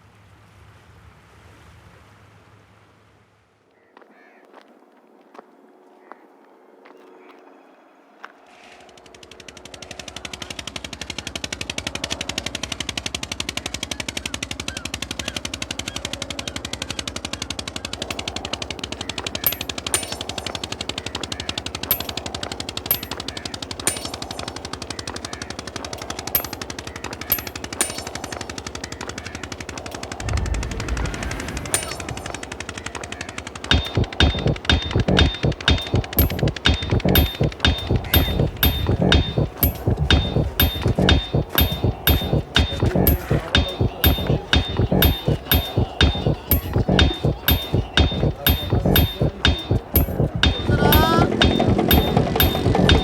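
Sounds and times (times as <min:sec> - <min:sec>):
low rumble: 0:30.2 - 0:32.5
mechanical rattle of clicks: 0:33.7 - 0:53.0.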